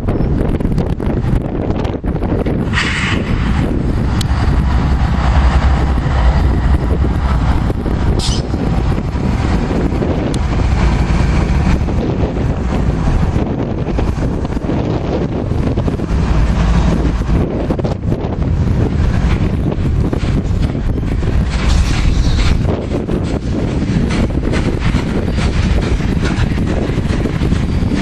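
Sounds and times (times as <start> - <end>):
train rumbling past: 0.0 - 28.0
wind buffeting microphone: 0.0 - 28.0
high-pitched squeal: 2.7 - 9.5, 21.6 - 22.7.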